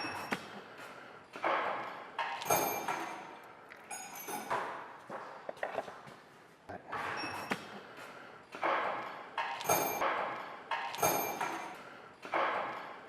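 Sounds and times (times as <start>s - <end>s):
metallic clanks and knocks: 1.3s - 5.3s, 8.5s - 13.0s.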